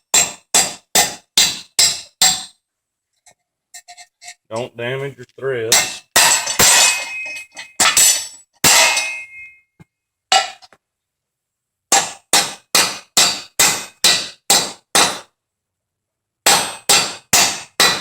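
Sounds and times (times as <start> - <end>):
hammer striking steel anchor: 0.0 - 2.6, 5.7 - 9.6, 11.9 - 15.3, 16.5 - 18.0.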